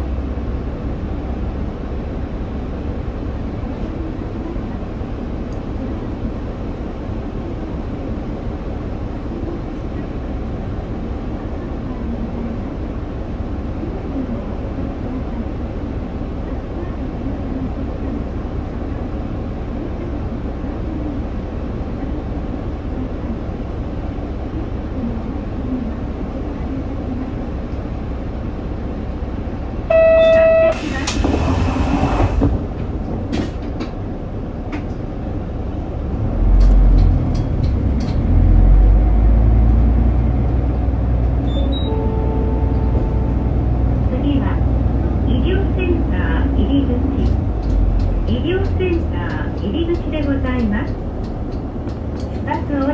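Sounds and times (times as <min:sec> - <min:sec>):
bus engine and road noise: 0:00.0 - 0:52.9
short beep: 0:29.9 - 0:31.2, 0:41.4 - 0:43.5.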